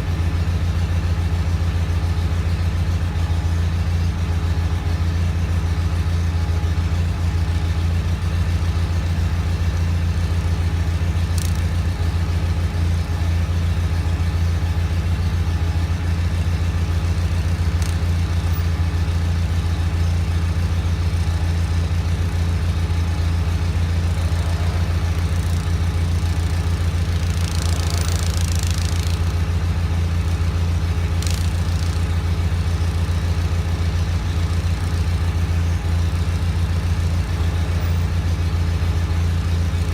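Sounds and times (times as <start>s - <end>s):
garden tractor engine running: 0.0s - 39.9s
sharp clicks: 11.3s - 11.8s, 17.7s - 18.2s, 24.9s - 29.4s, 31.0s - 32.2s.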